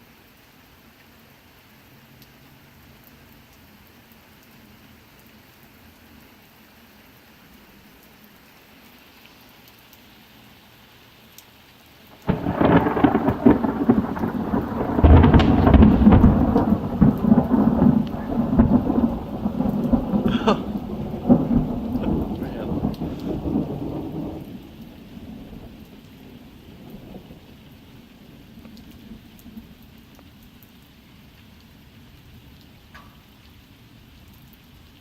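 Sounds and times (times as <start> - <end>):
steady rain: 0.0 - 35.0
thunderclap: 12.2 - 27.6
thunder rumbling: 12.2 - 29.8.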